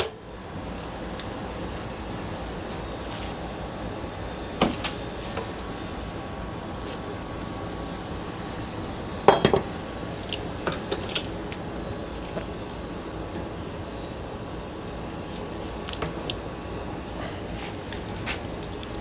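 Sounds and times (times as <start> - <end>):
metal parts and tools clinking: 9.3 - 9.7.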